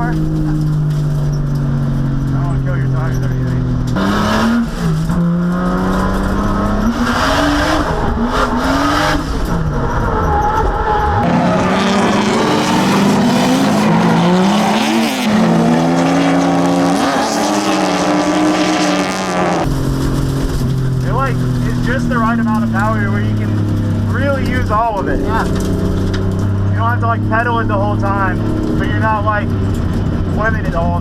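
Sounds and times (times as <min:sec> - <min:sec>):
tires squealing: 0:00.0 - 0:20.2
car engine revving: 0:00.0 - 0:31.0.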